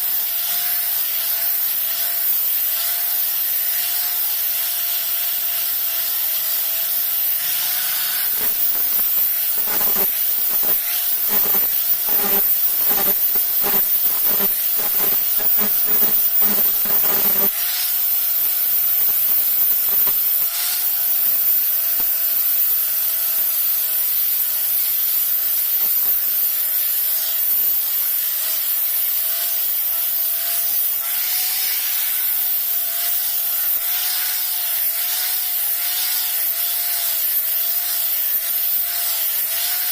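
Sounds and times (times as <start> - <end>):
abrasive rubbing strokes on blade: 3.0 - 22.2
steady hiss with wavering tone: 7.9 - 31.0.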